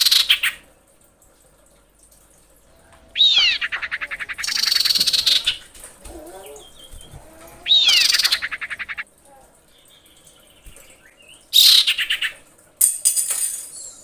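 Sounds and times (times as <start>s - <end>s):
bird call with rattling trill: 6.5s - 9.0s.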